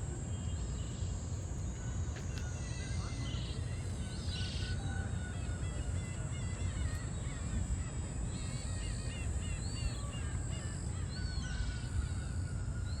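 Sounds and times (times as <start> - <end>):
bird calling: 6.8 - 13.0.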